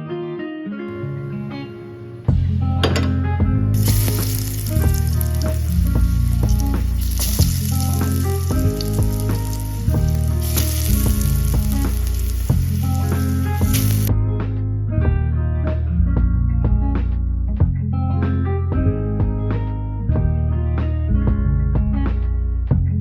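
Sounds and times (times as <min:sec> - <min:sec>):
background music with plucked melody: 0:00.0 - 0:23.0
food frying in hot oil: 0:03.8 - 0:14.1.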